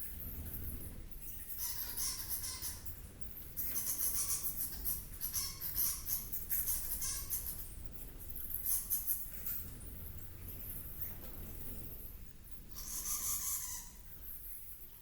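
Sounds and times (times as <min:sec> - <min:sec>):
rapid high-pitched animal chirping: 0:12.8 - 0:14.0.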